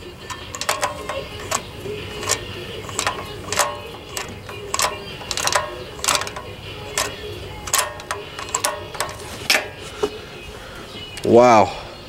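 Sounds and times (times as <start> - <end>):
socket ratchet clicking: 0.0 - 10.2.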